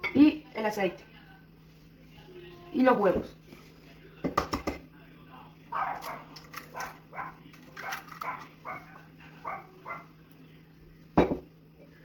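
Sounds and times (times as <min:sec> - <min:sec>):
small dog barking: 0:05.7 - 0:10.1.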